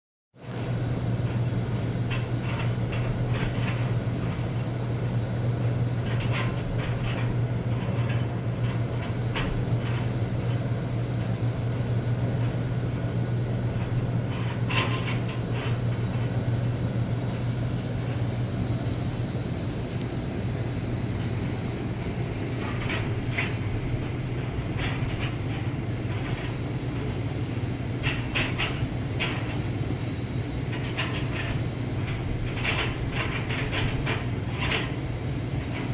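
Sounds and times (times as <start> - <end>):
oil furnace humming: 0.4 - 35.9
furnace ticks and rattles: 0.5 - 35.9.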